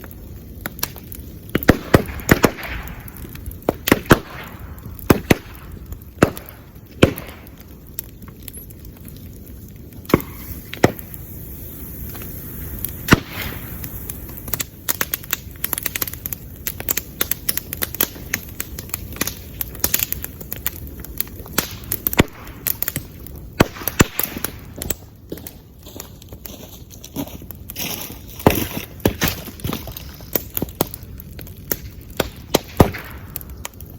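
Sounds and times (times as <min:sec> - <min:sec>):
bonfire crackling: 0:00.0 - 0:33.9
bamboo bursting bangs: 0:01.5 - 0:07.6, 0:10.0 - 0:11.2, 0:13.0 - 0:13.7, 0:21.4 - 0:24.9, 0:31.7 - 0:33.4.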